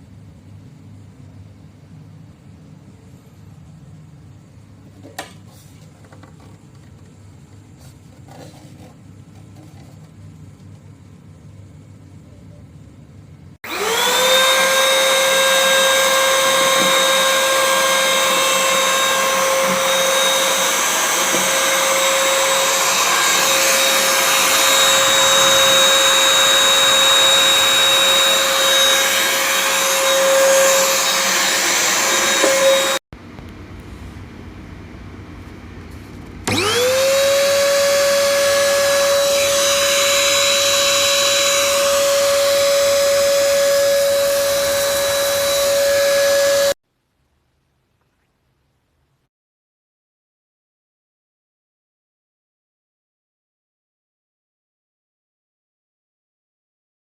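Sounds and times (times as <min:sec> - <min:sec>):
vacuum cleaner motor whining: 0:13.6 - 0:33.0, 0:36.4 - 0:46.8.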